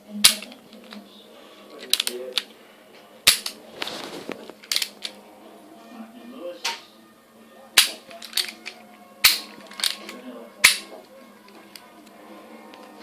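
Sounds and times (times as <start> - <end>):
revolver action clicking and snapping: 7.8 - 10.9.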